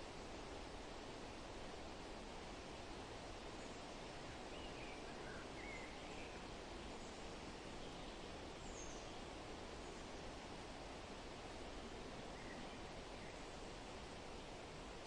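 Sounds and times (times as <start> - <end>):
wind rustling leaves: 0.0 - 15.0
faint bird chirps: 3.6 - 10.2, 12.3 - 13.6.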